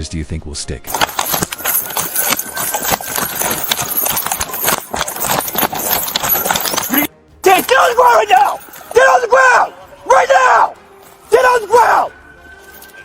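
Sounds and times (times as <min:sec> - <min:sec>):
gear jolting against camera: 0:00.9 - 0:07.1
running footsteps: 0:00.9 - 0:12.9.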